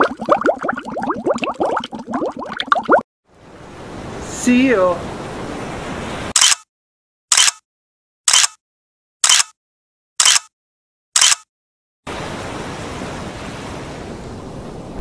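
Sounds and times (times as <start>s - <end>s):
ocean surf: 3.3s - 6.4s, 12.1s - 15.0s
camera shutter clicks: 6.4s - 6.6s, 7.3s - 7.6s, 8.3s - 8.6s, 9.2s - 9.6s, 10.2s - 10.5s, 11.2s - 11.4s.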